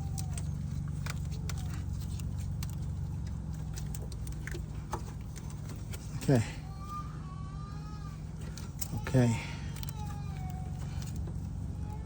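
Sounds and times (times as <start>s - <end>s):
light clicks and taps: 0.0s - 6.4s
low mechanical hum: 0.0s - 12.0s.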